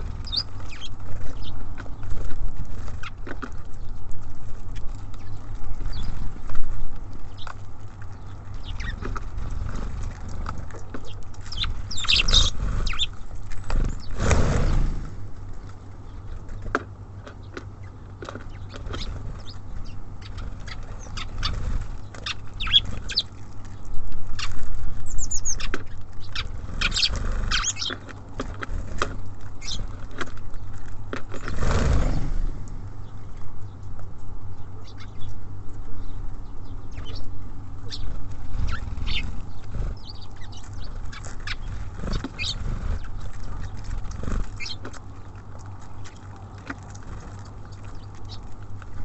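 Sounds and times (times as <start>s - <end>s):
beaks pecking and tapping: 0.0s - 14.4s, 15.1s - 31.8s, 32.6s - 49.0s
bird wingbeats: 0.0s - 16.8s, 18.2s - 33.1s, 37.8s - 49.0s
high bird chirps: 0.1s - 1.6s, 11.0s - 14.2s, 18.5s - 23.3s, 24.4s - 28.0s, 37.9s - 43.8s.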